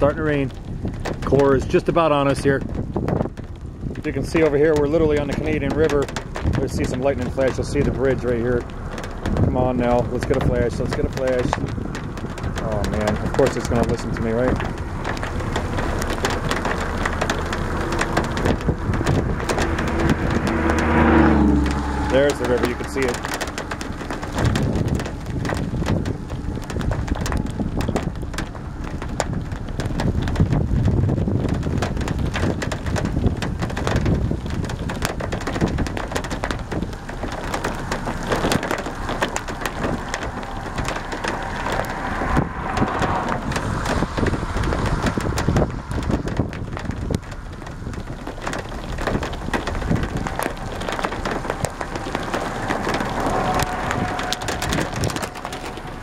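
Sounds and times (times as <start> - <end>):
drops hitting near microphone: 0.0 - 56.0
heavy low rumble: 0.0 - 56.0
rain falling: 0.0 - 56.0.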